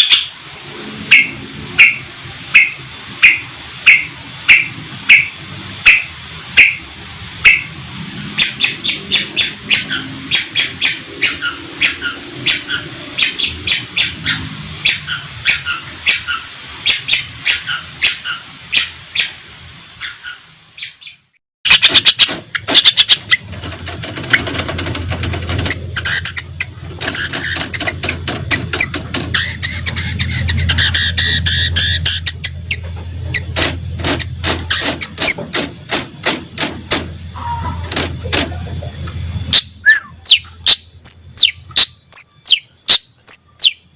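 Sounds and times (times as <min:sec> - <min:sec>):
bird giving harsh calls: 0:20.0 - 0:23.4, 0:39.5 - 0:43.8.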